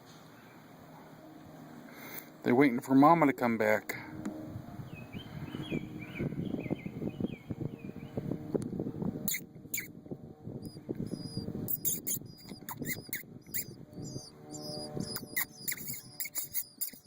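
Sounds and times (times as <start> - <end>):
person making mouth squeaks: 9.3 - 9.9, 11.2 - 17.0.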